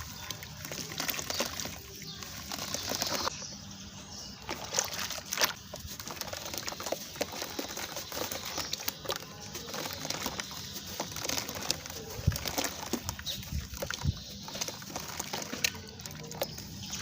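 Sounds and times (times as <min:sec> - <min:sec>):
sand-cement lumps crushed and crumbling: 0:04.6 - 0:17.0.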